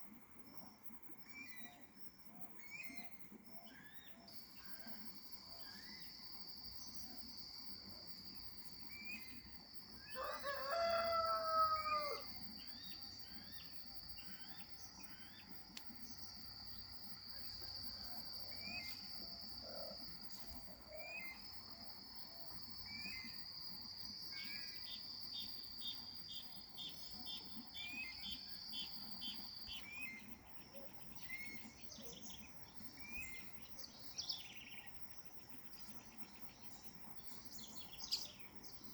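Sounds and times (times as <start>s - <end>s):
rooster crowing: 10.1s - 12.4s.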